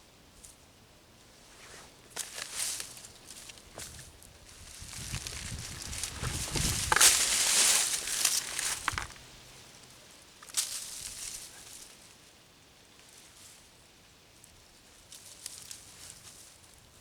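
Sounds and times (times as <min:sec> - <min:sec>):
dry leaves rustling: 0:01.3 - 0:12.3.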